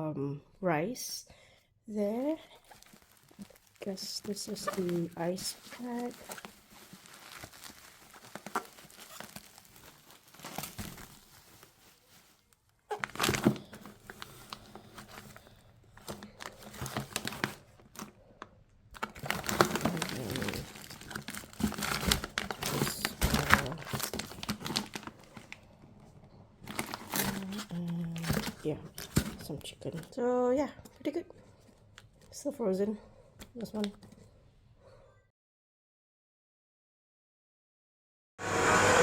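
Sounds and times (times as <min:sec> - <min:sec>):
plastic packaging crinkling: 0:02.0 - 0:18.3, 0:18.9 - 0:25.8, 0:26.6 - 0:30.1.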